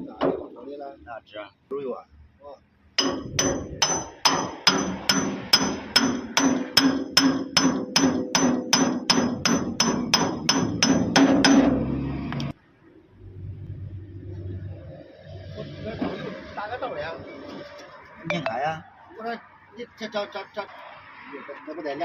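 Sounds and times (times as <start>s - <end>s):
hammer striking metal: 3.0s - 12.0s.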